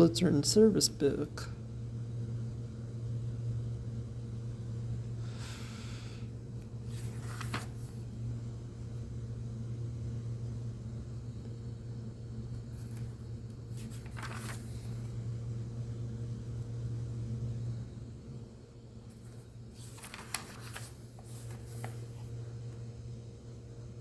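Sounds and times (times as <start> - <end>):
steady low hum: 0.0 - 24.0
pages turning: 6.8 - 8.1, 12.6 - 15.2, 19.1 - 22.4.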